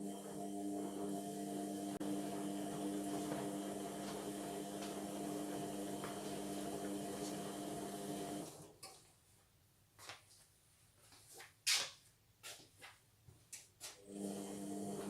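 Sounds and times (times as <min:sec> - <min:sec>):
washing machine humming: 0:00.0 - 0:08.8, 0:14.0 - 0:15.0.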